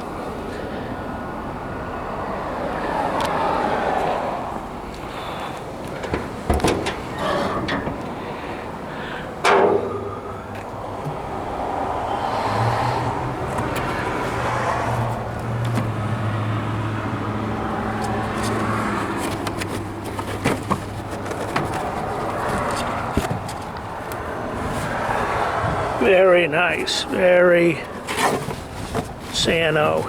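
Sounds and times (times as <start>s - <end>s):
engine humming: 0.0s - 30.0s.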